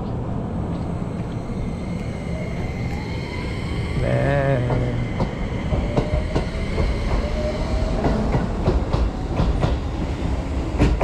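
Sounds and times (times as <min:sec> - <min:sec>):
low train rumble: 0:00.0 - 0:11.0
train wheels clacking over joints: 0:04.6 - 0:10.1, 0:10.7 - 0:11.0.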